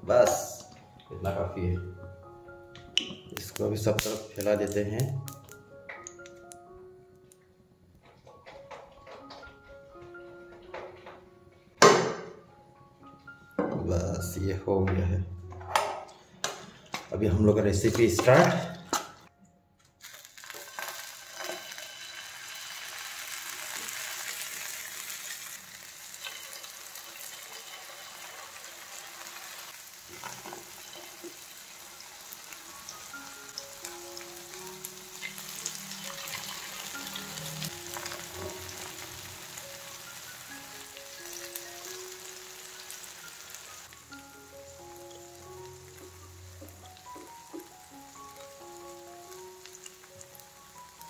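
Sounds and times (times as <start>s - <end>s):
soft background music: 0.0s - 51.0s
patties sizzling in oil: 20.0s - 51.0s.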